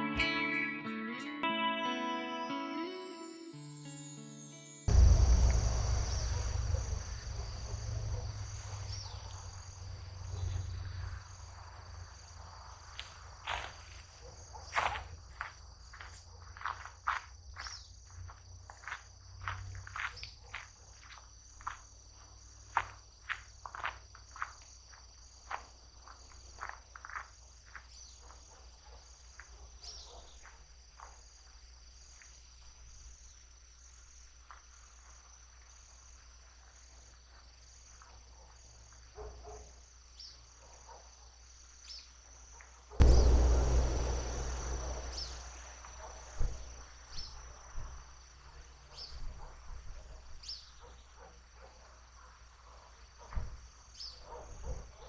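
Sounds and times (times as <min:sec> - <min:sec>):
crickets trilling: 0:02.9 - 0:55.0
loud rumble of noise: 0:04.9 - 0:08.9, 0:43.0 - 0:45.9.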